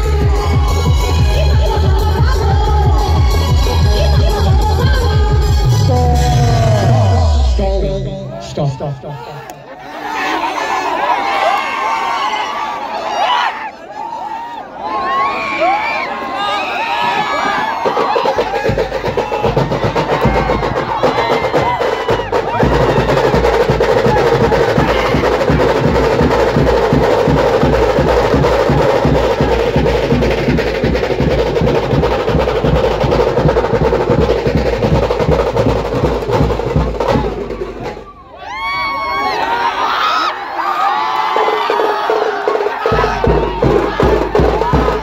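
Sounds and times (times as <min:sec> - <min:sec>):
fast dense drumming: 0:00.0 - 0:08.0, 0:17.1 - 0:38.2, 0:41.3 - 0:45.0
heavy bass drum beat: 0:00.0 - 0:08.3, 0:17.6 - 0:38.2, 0:42.0 - 0:45.0.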